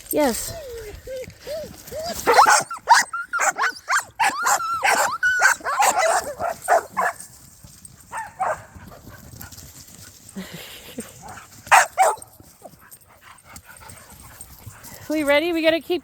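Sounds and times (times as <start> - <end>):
dogs whining and yipping: 0.2 - 7.3, 7.9 - 9.6, 11.0 - 14.9.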